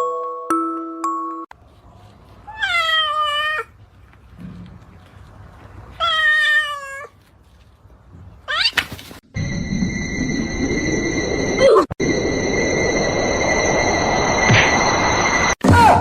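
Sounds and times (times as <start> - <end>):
cat meowing: 2.5 - 3.7, 6.0 - 7.2, 8.5 - 8.8.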